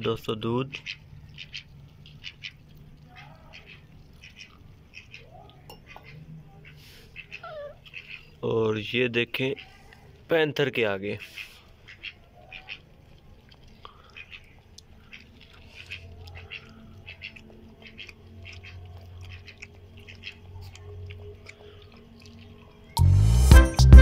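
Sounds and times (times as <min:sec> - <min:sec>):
puppy lapping milk: 0:11.6 - 0:23.0.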